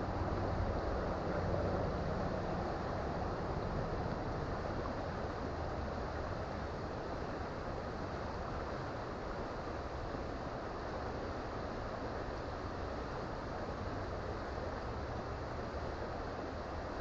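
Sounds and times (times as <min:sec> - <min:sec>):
creek water flowing over rocks: 0:00.0 - 0:17.0.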